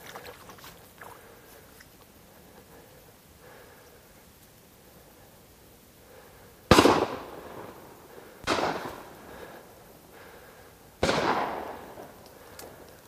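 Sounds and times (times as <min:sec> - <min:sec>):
shotgun shots with echo: 0:06.7 - 0:07.6, 0:08.4 - 0:09.1, 0:11.0 - 0:12.0.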